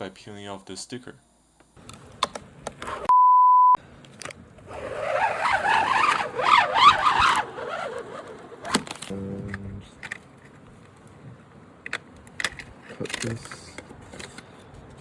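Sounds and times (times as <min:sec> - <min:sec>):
steady beep tone: 0:03.1 - 0:03.8
sticker peeling screech: 0:04.6 - 0:09.2.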